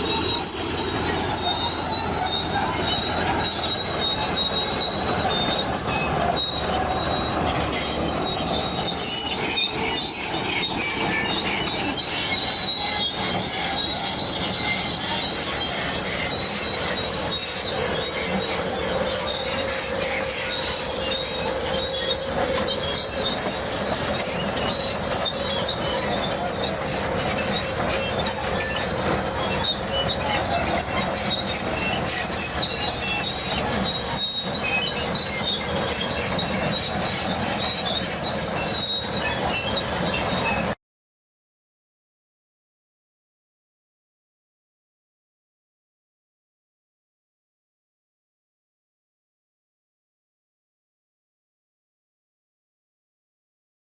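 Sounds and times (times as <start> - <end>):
bulldozer running: 0.0 - 40.8
crawler tracks squealing: 0.0 - 40.8.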